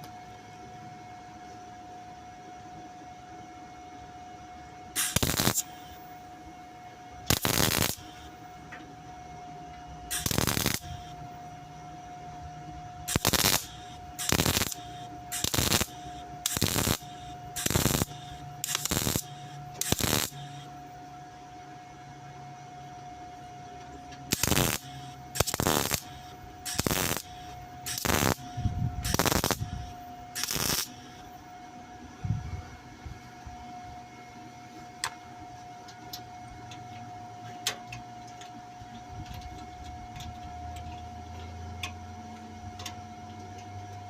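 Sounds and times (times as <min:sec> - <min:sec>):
faint steady tone: 0:00.0 - 0:34.8
welding arc crackling: 0:05.0 - 0:06.1, 0:07.2 - 0:08.3, 0:10.1 - 0:11.2, 0:13.1 - 0:20.7, 0:24.3 - 0:31.3.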